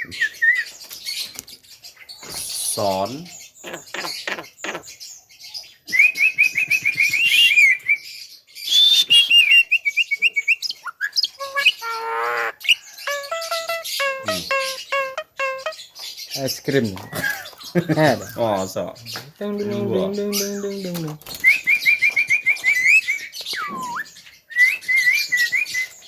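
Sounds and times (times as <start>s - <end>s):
myna chattering notes: 11.4s - 15.8s
myna wavering voice-like call: 11.4s - 15.8s, 19.4s - 21.2s.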